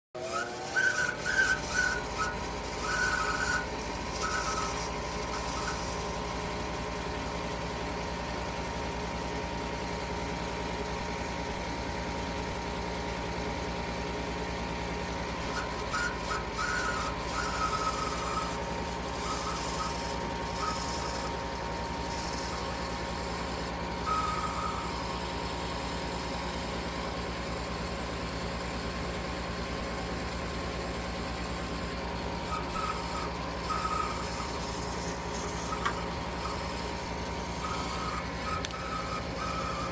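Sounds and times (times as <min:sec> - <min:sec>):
high motor chirps: 0:00.2 - 0:09.9, 0:15.0 - 0:26.2, 0:31.6 - 0:39.9
motor whining: 0:00.2 - 0:11.6, 0:14.6 - 0:26.6, 0:31.6 - 0:39.9.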